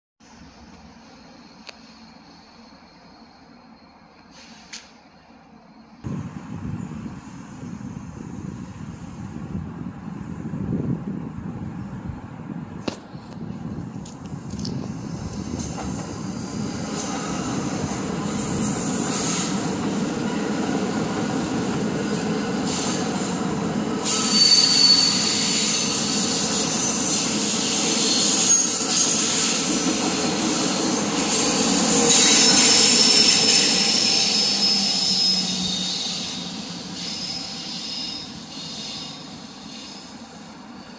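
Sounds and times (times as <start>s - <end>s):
train wheels on rails: 0.2s - 10.4s, 12.8s - 40.9s
high-pitched wheel squeal: 24.0s - 40.9s.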